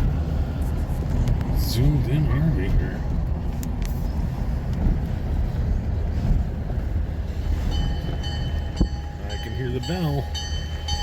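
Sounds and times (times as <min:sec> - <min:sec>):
diesel locomotive rumble: 0:00.0 - 0:11.0
locomotive bell ringing: 0:07.4 - 0:11.0.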